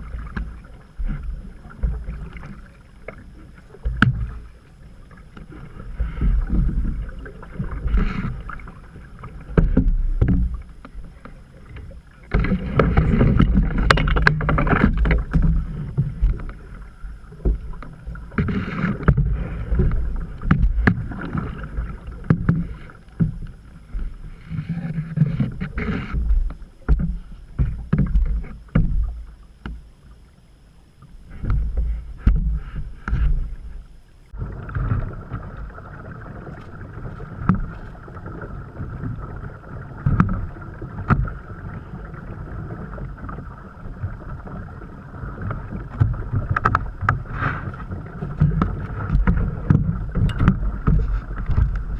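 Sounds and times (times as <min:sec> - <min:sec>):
paddle splashing in water: 0:00.0 - 0:30.4, 0:31.0 - 0:51.9
low microphone rumble: 0:00.0 - 0:51.9
knocks against canoe hull: 0:09.5 - 0:10.6, 0:25.2 - 0:29.8, 0:31.4 - 0:33.6, 0:48.4 - 0:51.8.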